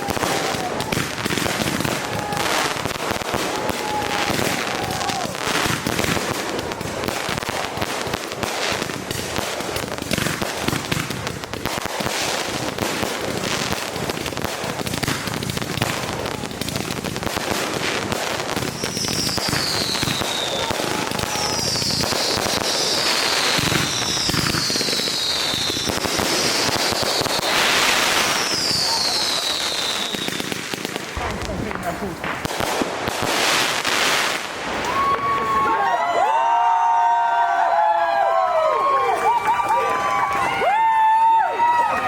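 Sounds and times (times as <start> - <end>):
fireworks crackling and popping: 0.0 - 42.0
falling firework whistles: 18.6 - 30.7.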